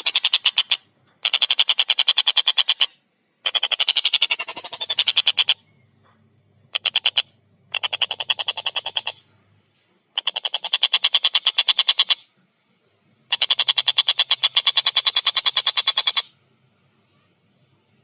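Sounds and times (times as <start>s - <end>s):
kingfisher harsh rapid calls: 0.0s - 5.6s, 6.7s - 9.2s, 10.2s - 12.3s, 13.3s - 16.3s.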